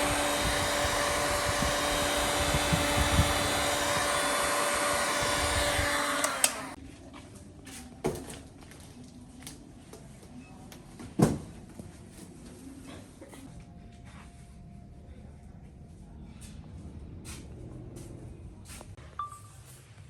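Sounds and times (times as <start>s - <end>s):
electric blower running: 0.0s - 6.8s.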